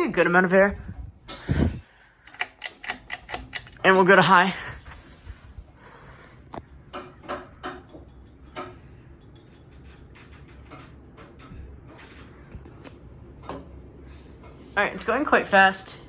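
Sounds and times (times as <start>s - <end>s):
ceiling fan humming: 0.0s - 16.0s
fan stand clicking and knocking: 6.9s - 13.8s.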